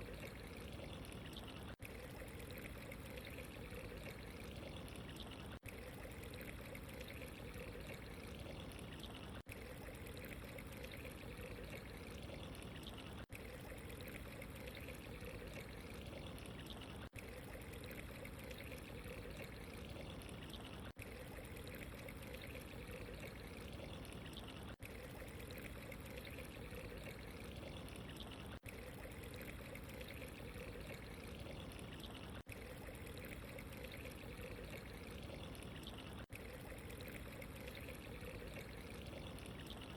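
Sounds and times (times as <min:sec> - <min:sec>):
water trickling and pouring: 0:00.0 - 0:39.9.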